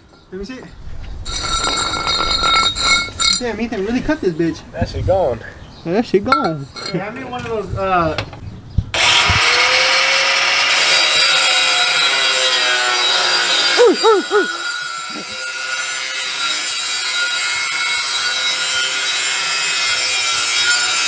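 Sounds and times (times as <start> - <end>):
power grinder on steel pipe: 9.0 - 21.0.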